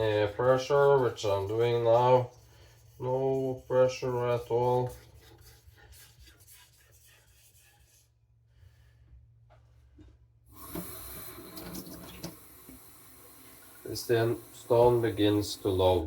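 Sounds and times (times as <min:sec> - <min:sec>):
knife rubbing on whetstone: 0:00.0 - 0:08.1
steady hiss: 0:12.2 - 0:16.0.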